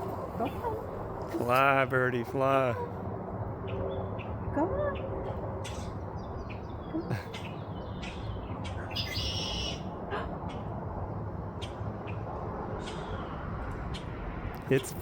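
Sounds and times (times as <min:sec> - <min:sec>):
birds chirping: 0:03.6 - 0:15.0.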